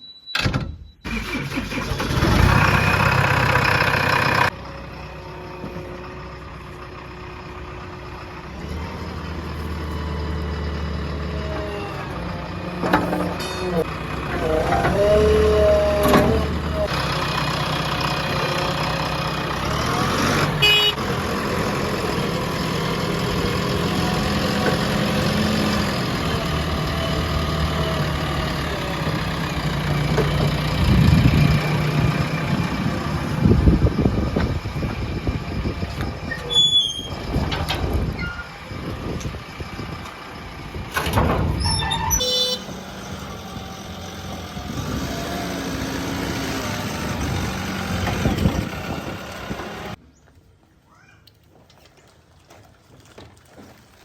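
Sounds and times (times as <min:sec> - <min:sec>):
high beeps: 0:00.0 - 0:01.1
heavy diesel engines running: 0:01.1 - 0:50.0.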